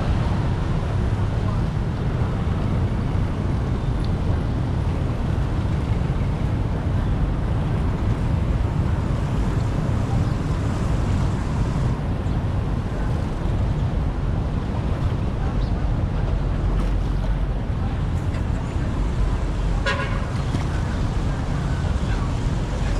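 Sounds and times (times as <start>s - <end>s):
floodwater rushing: 0.0s - 22.9s.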